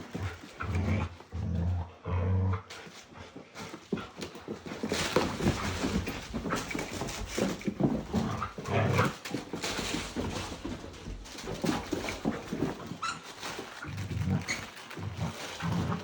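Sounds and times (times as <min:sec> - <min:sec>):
puppies scuffling: 0:00.0 - 0:01.8, 0:02.6 - 0:16.0.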